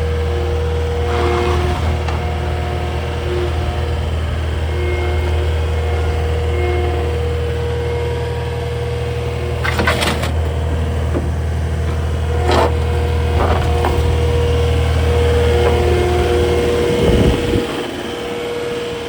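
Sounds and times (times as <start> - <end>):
diesel engine running with whine: 0.0 - 19.0
sharp knocks and clatters: 9.5 - 16.4.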